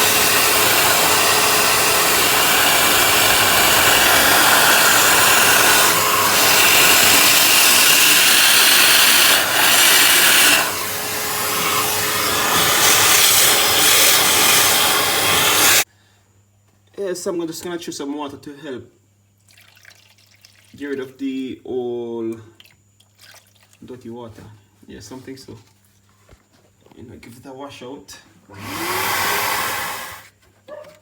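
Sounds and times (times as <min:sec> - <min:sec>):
vacuum cleaner sucking water: 0:00.0 - 0:15.9, 0:28.6 - 0:30.3.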